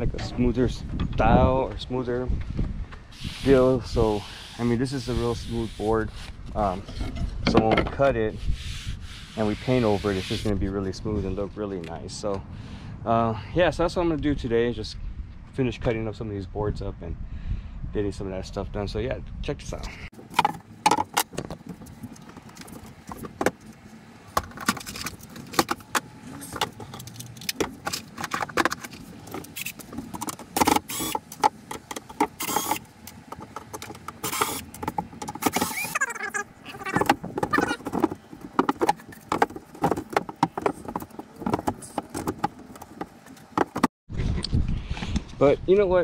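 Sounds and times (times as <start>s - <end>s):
wooden boards knocking and rattling: 7.0s - 8.0s, 20.2s - 23.6s, 36.8s - 43.9s.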